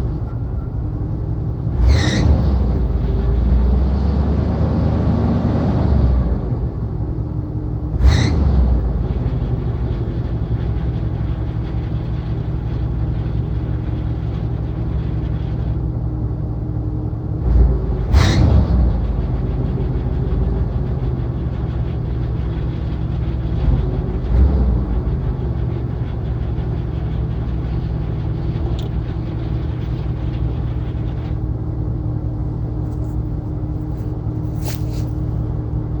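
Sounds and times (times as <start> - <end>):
car engine idling: 8.8 - 16.2, 18.8 - 36.0.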